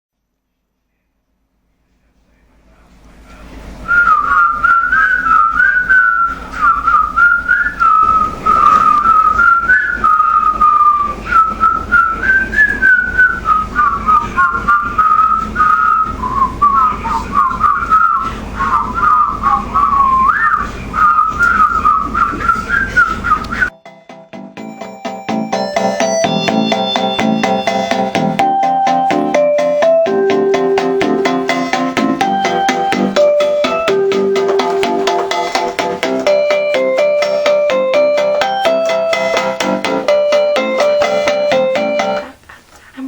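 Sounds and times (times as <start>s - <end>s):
low steady hum: 0.2s - 23.7s
person whistling a tune: 3.9s - 23.8s, 31.5s - 34.8s.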